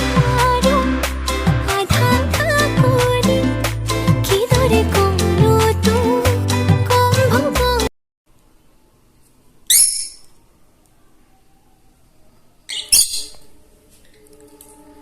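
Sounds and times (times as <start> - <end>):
parrot squawking: 9.7 - 10.3, 12.7 - 13.6.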